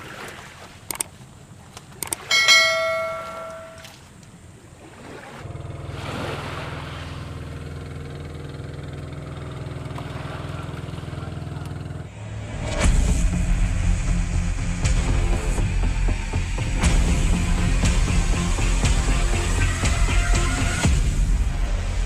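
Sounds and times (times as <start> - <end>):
small engine humming: 5.4 - 21.6.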